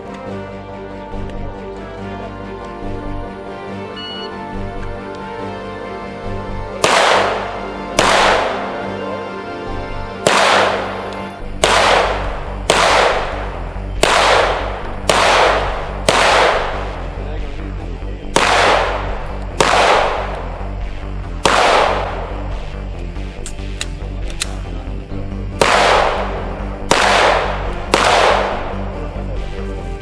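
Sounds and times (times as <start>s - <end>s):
gunshots with echo: 6.8s - 8.9s, 10.2s - 17.3s, 18.3s - 20.4s, 21.4s - 22.4s, 25.6s - 28.9s.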